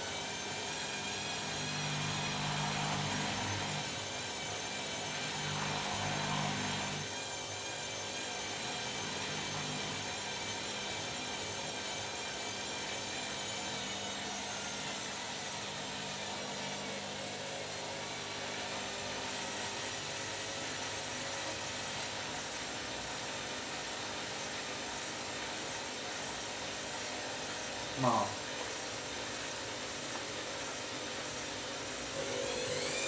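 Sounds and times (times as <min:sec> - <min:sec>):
washing machine churning: 0:28.6 - 0:33.0.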